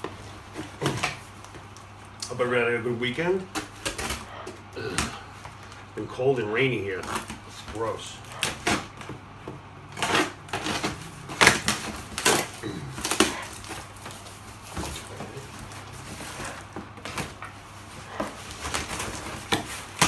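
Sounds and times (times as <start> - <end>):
cardboard parcel rustling and knocks: 0.0 - 1.7, 7.0 - 20.0.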